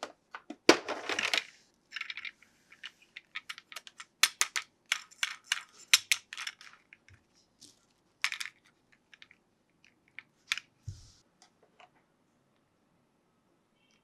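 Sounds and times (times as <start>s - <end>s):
plastic toy clicks and clatter: 1.0s - 7.0s.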